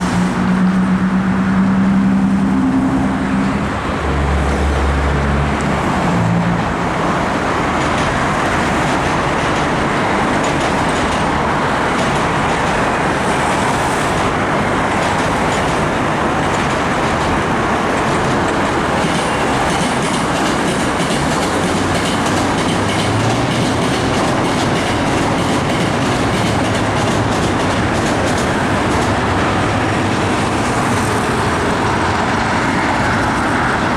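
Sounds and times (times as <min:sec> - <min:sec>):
train wheels rumbling on track: 0:00.0 - 0:33.9.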